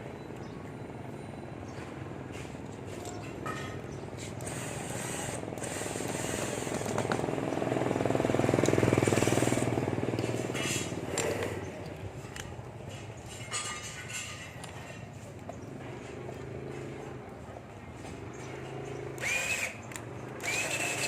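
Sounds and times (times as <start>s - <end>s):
engine passing by: 5.6s - 13.1s.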